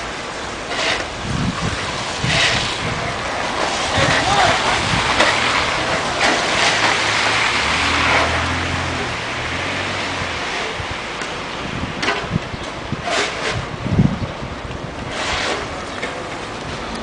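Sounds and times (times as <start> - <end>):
constant rushing noise: 0.0 - 17.0
sharp scraping or knocking: 2.2 - 2.8, 3.6 - 9.1, 13.0 - 13.7, 15.1 - 16.2
vehicle engine humming: 2.8 - 12.9.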